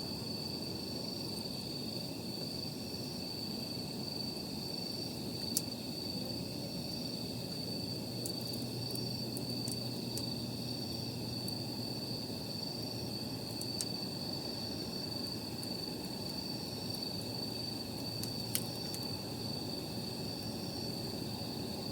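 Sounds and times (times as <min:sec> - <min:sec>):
night insects trilling: 0:00.0 - 0:21.9
campfire crackling: 0:00.1 - 0:21.9
fire popping and snapping: 0:04.8 - 0:21.2.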